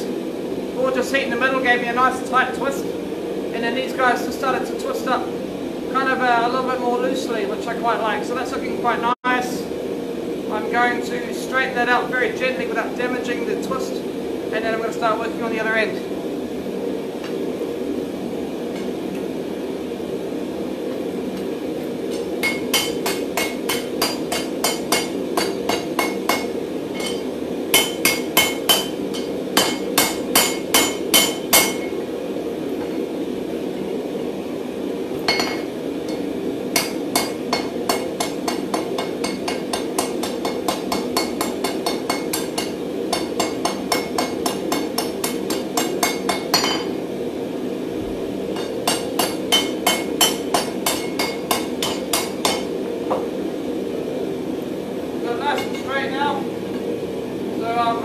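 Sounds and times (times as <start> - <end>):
hammer tapping steel on anvil: 22.1 - 32.0, 36.8 - 46.9, 48.6 - 53.2.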